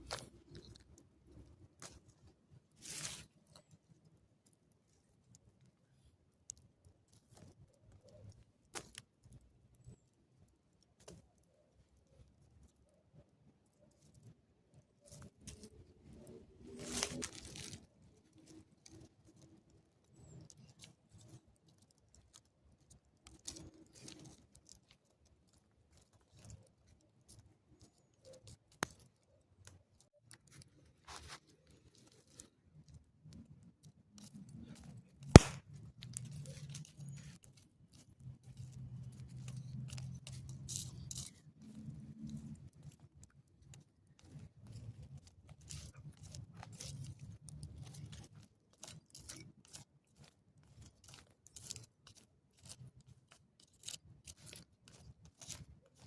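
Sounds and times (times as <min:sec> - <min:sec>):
shells cracking by hand: 0:35.4 - 0:36.2.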